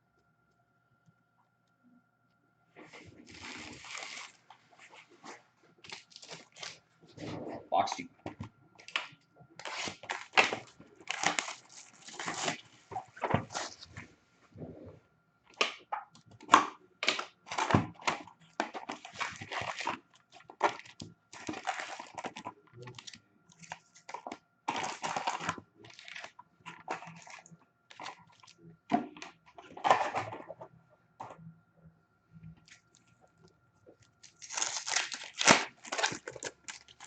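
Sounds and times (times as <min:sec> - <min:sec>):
card packs tearing open: 0:03.2 - 0:04.4, 0:05.8 - 0:06.8, 0:09.6 - 0:13.8, 0:17.0 - 0:28.5, 0:34.2 - 0:37.0.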